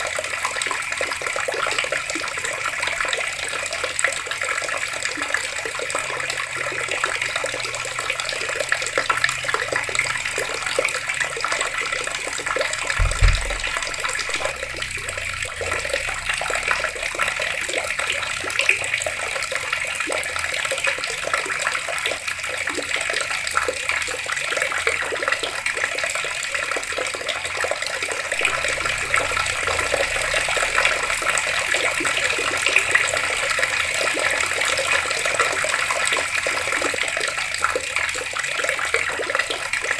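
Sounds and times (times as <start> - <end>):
water taps running: 0.0 - 39.9
low thump: 13.0 - 16.9, 28.4 - 31.4.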